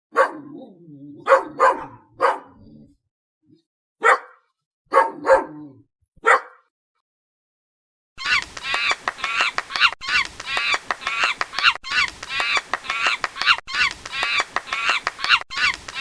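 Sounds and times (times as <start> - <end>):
dog barking: 0.1 - 2.9, 4.0 - 6.7.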